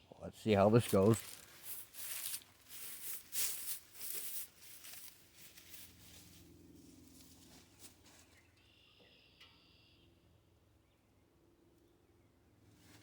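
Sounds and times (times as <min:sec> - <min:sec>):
rustling handling noise: 0:00.6 - 0:08.4
faint bird chirping: 0:07.6 - 0:12.5.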